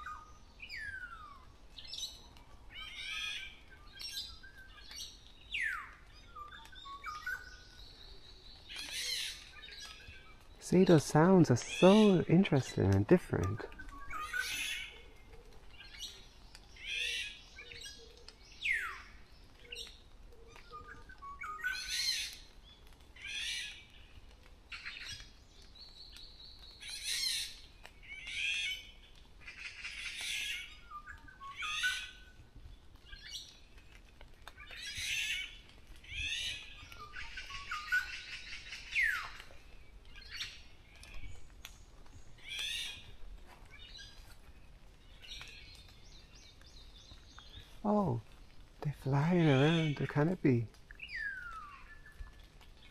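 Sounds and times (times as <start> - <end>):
birds chattering calls: 2.8 - 22.5, 45.0 - 52.9.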